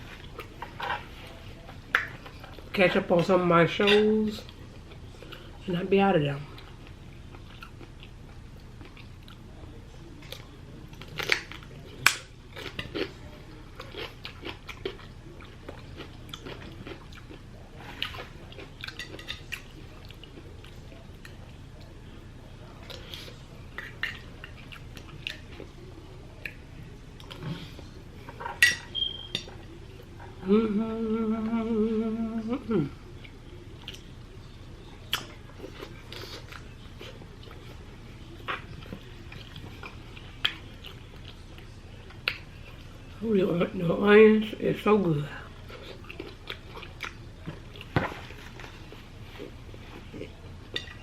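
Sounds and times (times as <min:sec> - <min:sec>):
chewing and crunching food: 0:00.0 - 0:05.7, 0:06.3 - 0:30.4, 0:33.0 - 0:43.2, 0:45.1 - 0:51.0.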